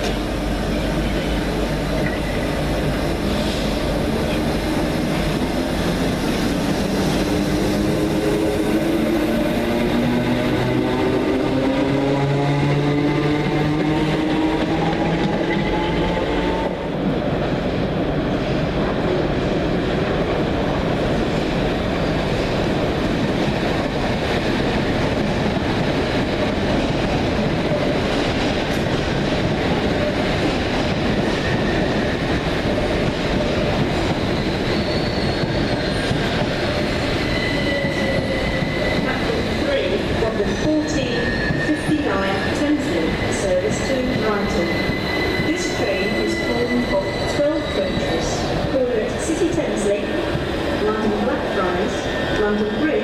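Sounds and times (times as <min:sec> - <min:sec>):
faint wheel squeal: 0:34.7 - 0:36.0.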